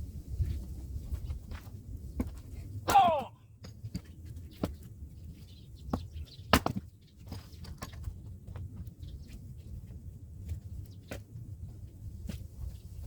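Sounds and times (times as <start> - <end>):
axe striking firewood: 2.9 - 3.3, 6.5 - 6.8.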